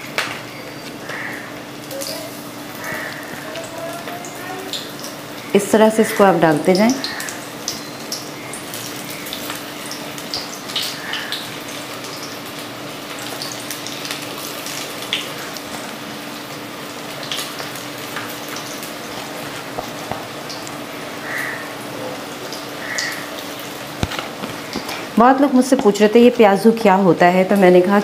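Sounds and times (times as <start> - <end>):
oil popping and crackling: 0.0 - 26.1
food deep-frying in hot oil: 0.0 - 28.0.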